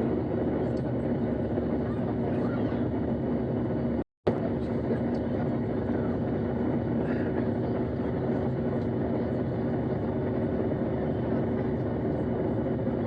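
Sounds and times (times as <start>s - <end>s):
jet engine drone inside cabin: 0.0s - 13.0s.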